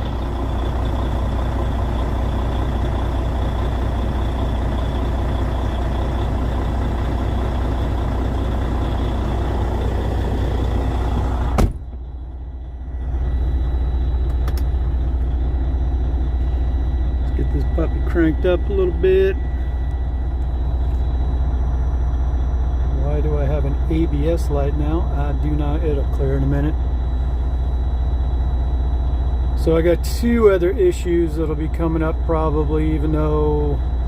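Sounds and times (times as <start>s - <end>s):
diesel truck engine idling: 0.0s - 34.0s
sharp knock: 11.6s - 11.8s.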